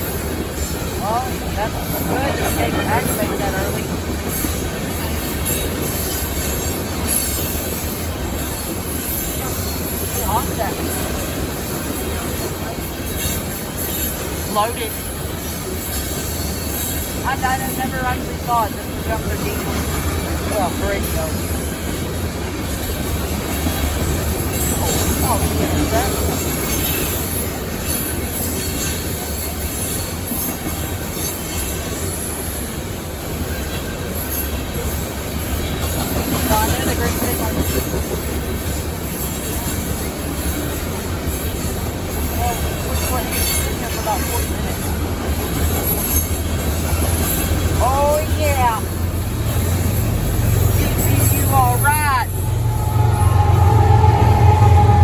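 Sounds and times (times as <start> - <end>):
train cars rolling on rails: 0.0 - 55.0
wheel squeal: 50.8 - 55.0.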